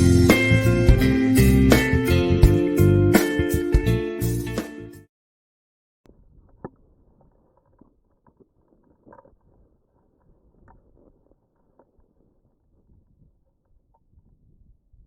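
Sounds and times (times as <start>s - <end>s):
wind rumbling on microphone: 6.1s - 15.0s.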